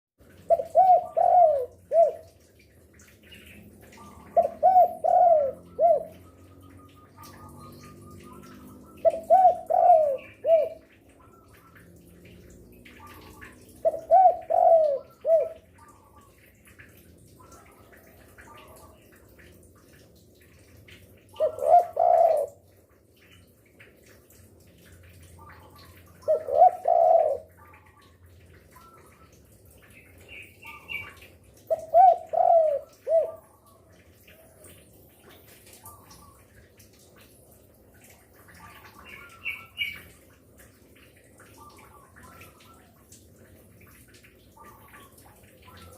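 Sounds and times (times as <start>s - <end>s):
dove cooing: 0.4s - 2.4s, 3.9s - 10.9s, 12.9s - 16.2s, 21.4s - 22.7s, 25.4s - 28.0s, 30.7s - 33.8s.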